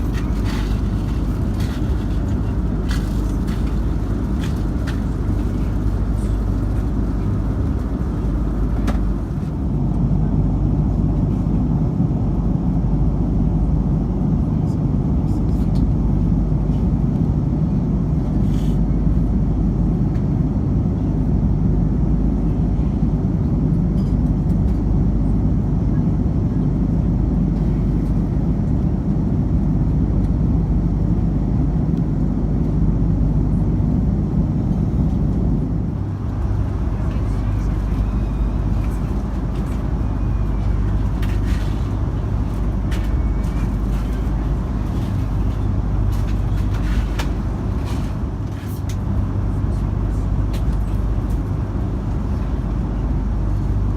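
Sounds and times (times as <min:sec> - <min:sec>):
airliner cabin engine rumble: 0:00.0 - 0:53.9.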